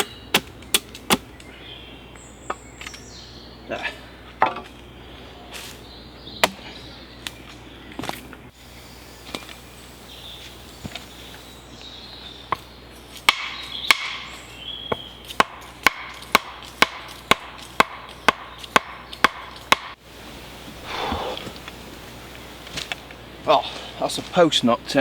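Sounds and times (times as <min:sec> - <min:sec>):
wooden post being hammered: 0:13.3 - 0:14.2, 0:15.4 - 0:20.0.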